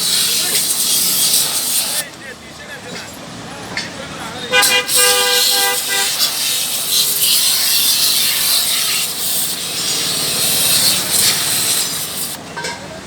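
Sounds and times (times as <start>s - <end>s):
hissing rubbing of washing: 0.0s - 2.1s, 4.6s - 12.4s
vehicle horn: 4.5s - 6.4s.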